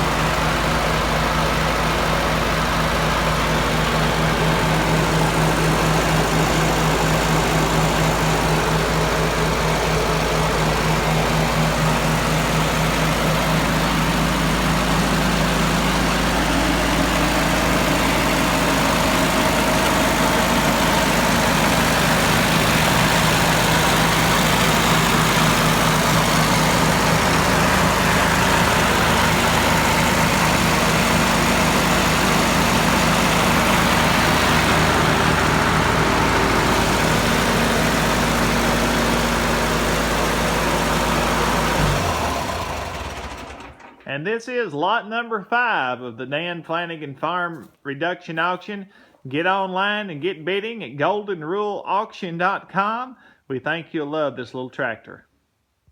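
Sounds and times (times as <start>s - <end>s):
tractor engine idling: 0.0s - 44.4s.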